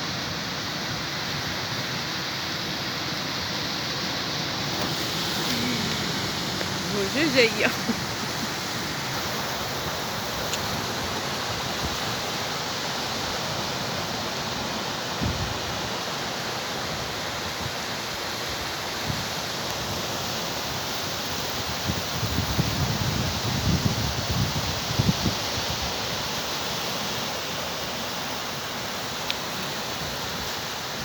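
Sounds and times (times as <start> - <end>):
sea surf breaking: 3.9 - 17.8.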